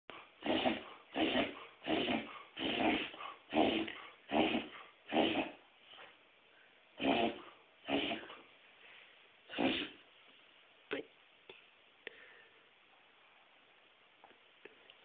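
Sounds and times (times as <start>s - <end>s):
dog reverse sneezing: 9.5s - 10.0s.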